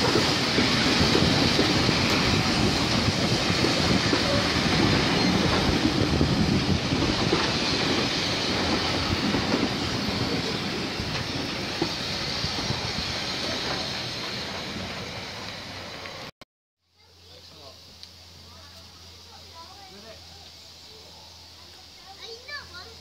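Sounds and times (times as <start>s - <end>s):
train coaches rolling on rails: 0.0s - 16.3s.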